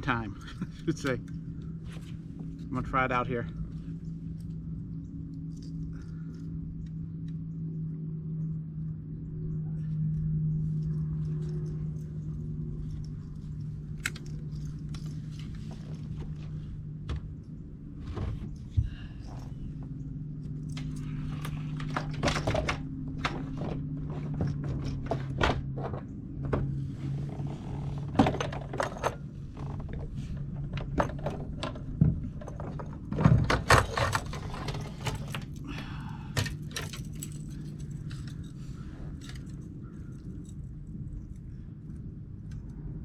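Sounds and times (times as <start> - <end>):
steady low hum: 0.0 - 43.0
fishing tackle clicking and rattling: 33.7 - 40.6.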